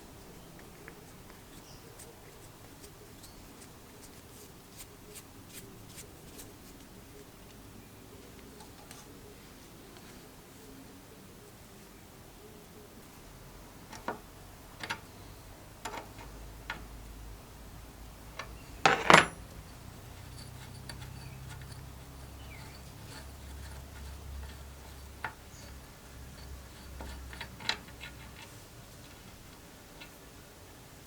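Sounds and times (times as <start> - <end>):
metal clatter: 18.8 - 19.5
metal parts clinking and knocking: 18.8 - 19.5.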